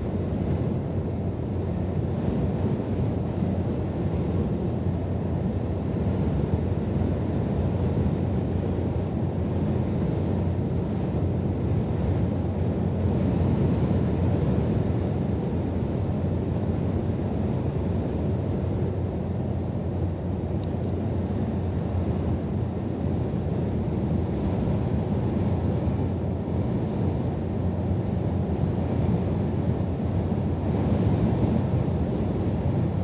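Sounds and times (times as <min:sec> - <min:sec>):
truck engine and road noise: 0:00.0 - 0:33.0.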